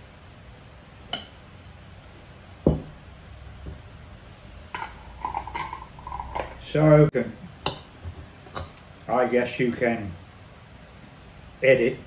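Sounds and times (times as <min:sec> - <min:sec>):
spoon clinking on jar: 0:04.8 - 0:06.6.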